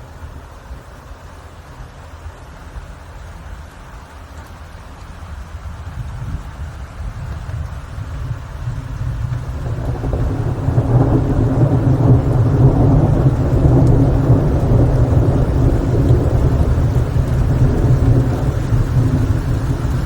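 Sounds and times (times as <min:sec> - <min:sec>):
steady rain: 0:00.0 - 0:20.0
thunder rumbling: 0:05.4 - 0:20.0.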